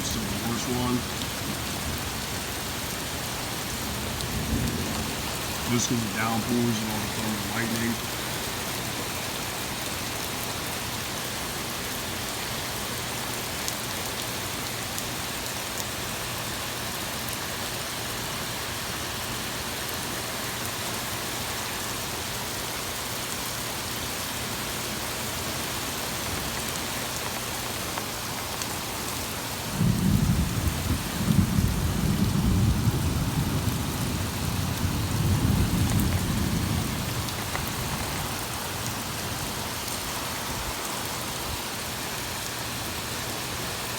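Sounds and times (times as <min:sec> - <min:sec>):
torrential rain pouring: 0:00.0 - 0:43.9
thunder rumble: 0:29.7 - 0:39.6.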